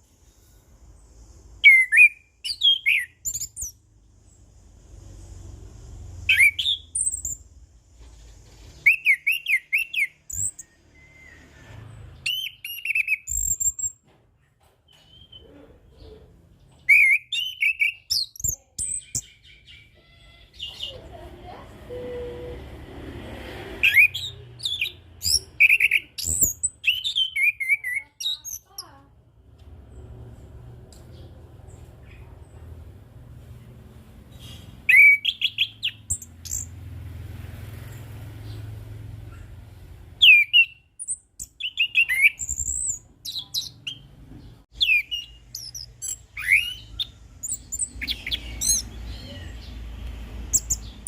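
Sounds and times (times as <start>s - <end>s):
thrush singing whistled notes: 1.6s - 3.8s, 6.2s - 7.5s, 8.8s - 14.0s, 16.9s - 19.9s, 23.8s - 28.6s, 34.8s - 36.8s, 40.2s - 44.0s, 44.7s - 49.4s.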